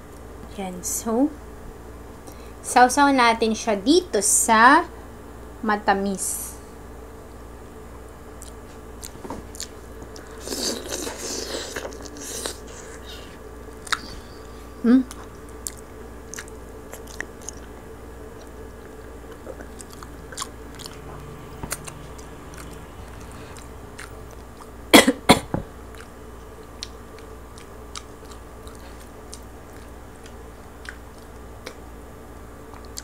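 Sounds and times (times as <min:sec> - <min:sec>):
close chewing with crunches: 0:08.4 - 0:24.9, 0:25.8 - 0:32.0, 0:32.6 - 0:33.0.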